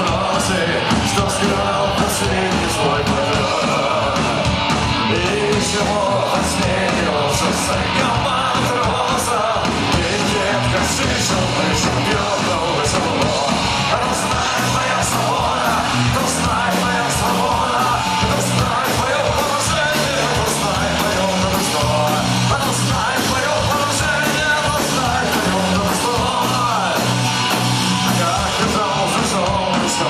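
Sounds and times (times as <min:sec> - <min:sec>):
distorted electric guitars: 0:00.0 - 0:30.0
drums with cymbal strikes: 0:00.0 - 0:30.0
shouted singing: 0:00.0 - 0:30.0.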